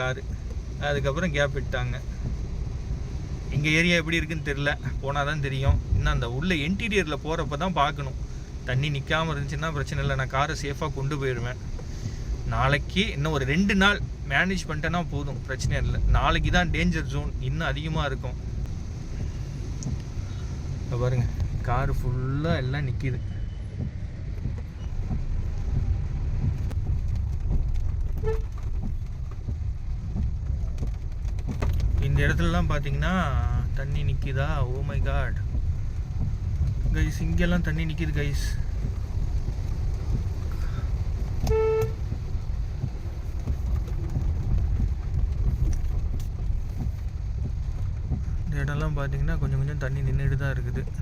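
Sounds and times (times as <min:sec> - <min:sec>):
car rumble from inside cabin: 0:00.0 - 0:51.0
car horn beep: 0:28.2 - 0:28.6, 0:41.4 - 0:42.1.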